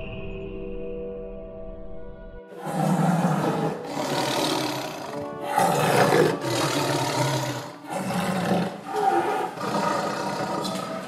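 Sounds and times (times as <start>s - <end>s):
tiger roaring and growling: 2.5s - 11.0s.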